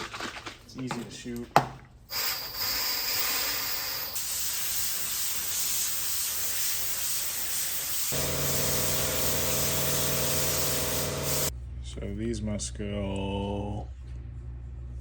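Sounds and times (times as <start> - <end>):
spray gun hissing: 2.1 - 11.5.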